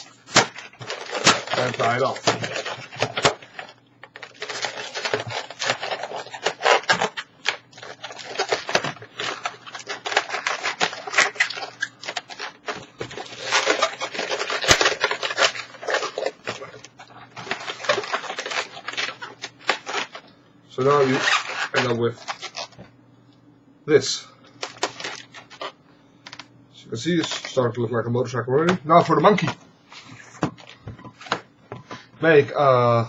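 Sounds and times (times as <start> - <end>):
balloons squeaking and rubbing: 0.0 - 20.2, 20.8 - 22.8.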